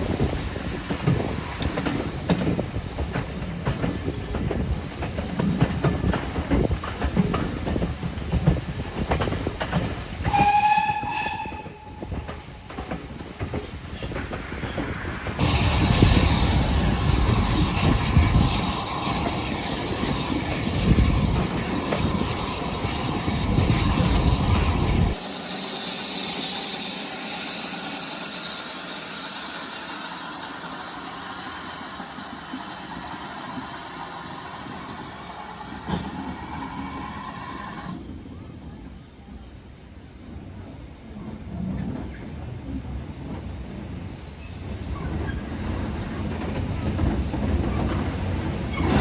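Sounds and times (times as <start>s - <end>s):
steam hissing: 0.0s - 38.6s.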